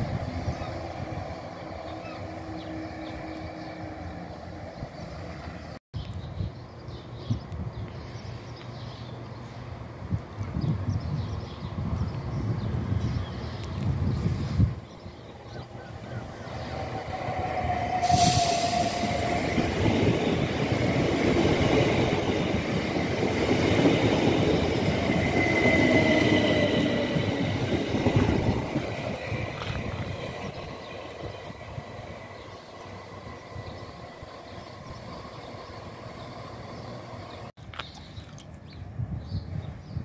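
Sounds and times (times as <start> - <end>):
train wheels rumbling on rails: 11.6 - 37.5.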